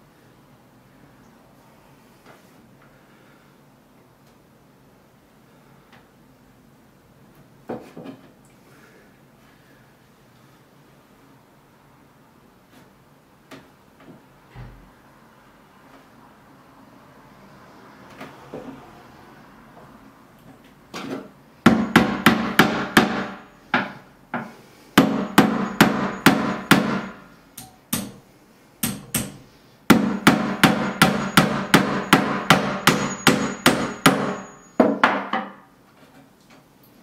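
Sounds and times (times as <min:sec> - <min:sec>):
hammer blows: 0:21.7 - 0:28.2, 0:28.8 - 0:35.5.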